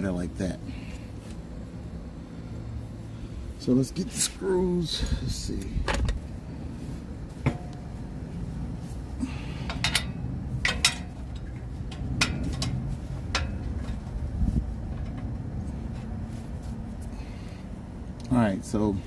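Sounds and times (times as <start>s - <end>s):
steady low rumble: 0.0s - 19.0s
clinks of bolts and hand tools: 9.6s - 14.0s.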